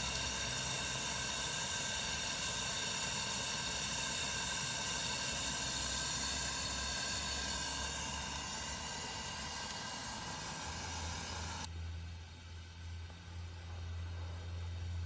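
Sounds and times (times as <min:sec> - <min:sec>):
camp stove burner hissing: 0:00.0 - 0:11.7.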